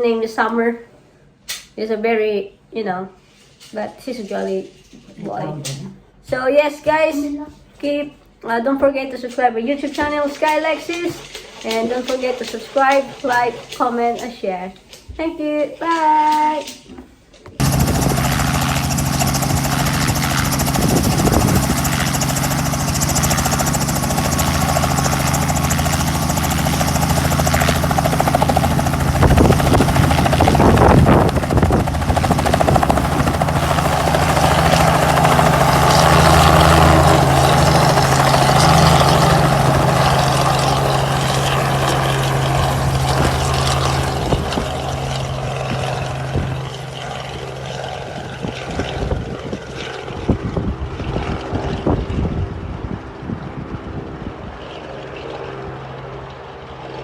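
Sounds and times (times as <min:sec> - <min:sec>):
helicopter engine and rotor hum: 0:17.6 - 0:57.0.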